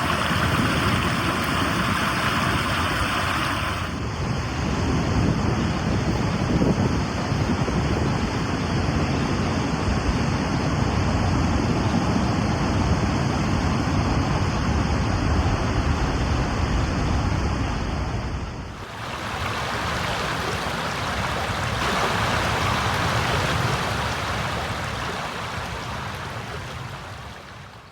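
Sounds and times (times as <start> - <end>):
rushing water: 0.0 - 4.1, 18.7 - 27.9.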